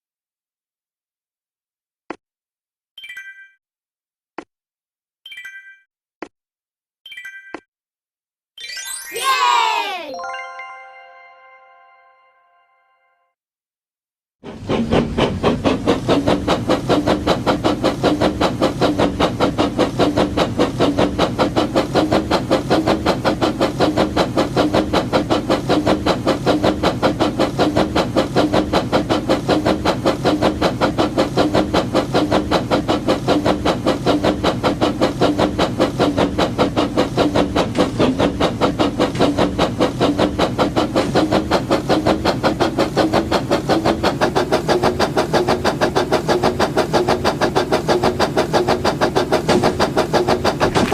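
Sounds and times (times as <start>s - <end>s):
toy train motor hum: 14.5s - 50.9s.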